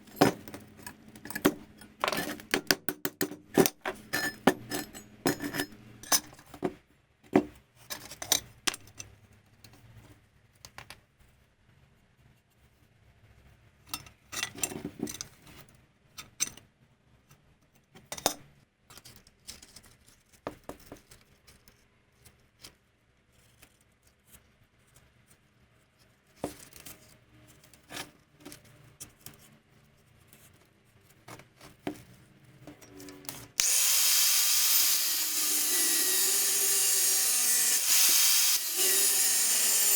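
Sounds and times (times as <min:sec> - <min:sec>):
metal tools clinking: 0:03.6 - 0:06.4
loud steady hissing: 0:33.6 - 0:35.8.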